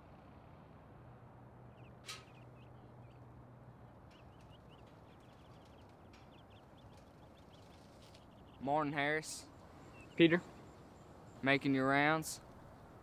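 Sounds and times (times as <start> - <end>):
small birds chirping: 1.5 - 13.0
short sharp click: 2.0 - 2.4.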